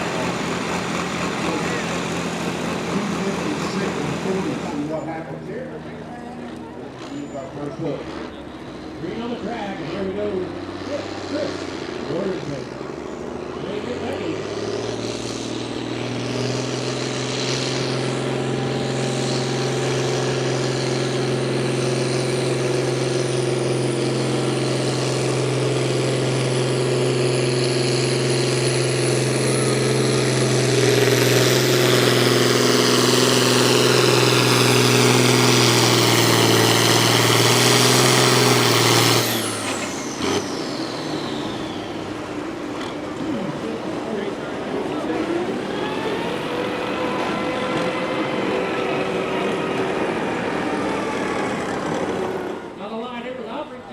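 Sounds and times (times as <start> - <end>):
heavy engine running flat out: 0.0 - 53.9
high whine: 39.2 - 53.2.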